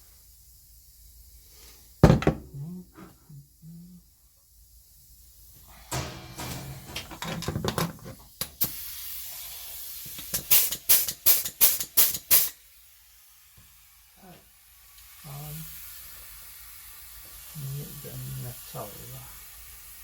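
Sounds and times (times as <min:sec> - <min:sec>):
air hissing: 0:08.1 - 0:14.4
sharp air blasts: 0:08.4 - 0:12.6.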